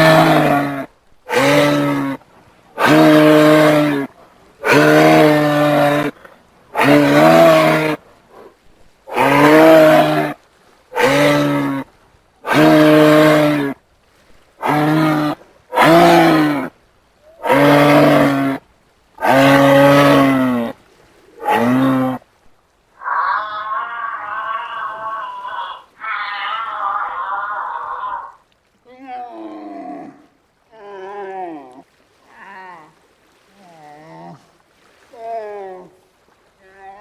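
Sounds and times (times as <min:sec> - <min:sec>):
animal low moo-like calls: 0:23.0 - 0:28.4.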